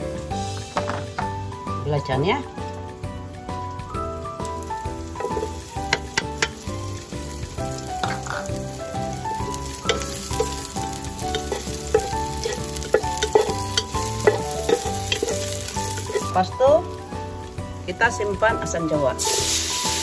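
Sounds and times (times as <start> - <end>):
food sizzling in hot oil: 0.0 - 20.0
spatula clicking against pot: 9.8 - 16.2.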